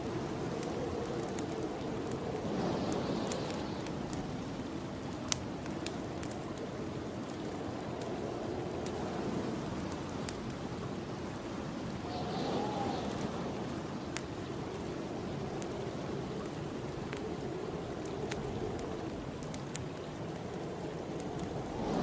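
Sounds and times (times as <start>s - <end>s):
faint wind whistle: 0.0s - 4.5s, 11.4s - 16.4s
wind blowing in gusts: 0.0s - 22.0s
wood fire crackling and popping: 0.0s - 22.0s.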